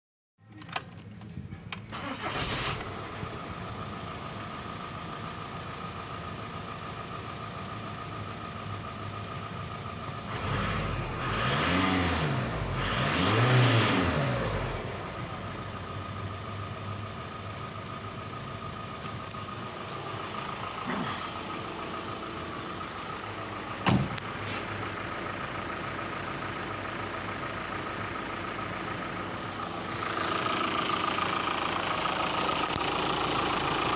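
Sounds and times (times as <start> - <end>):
car engine starting and idling: 0.4 - 33.9
engine revving: 2.0 - 3.2, 10.3 - 15.7.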